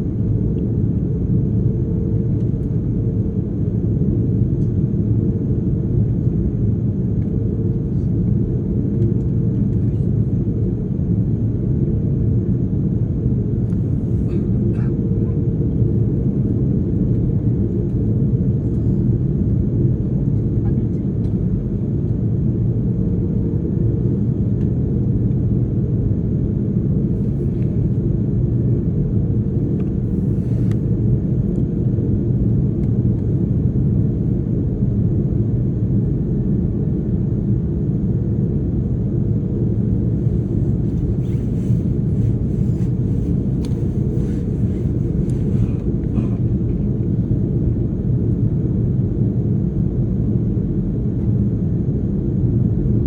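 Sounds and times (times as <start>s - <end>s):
jet engines idling: 39.1s - 48.4s.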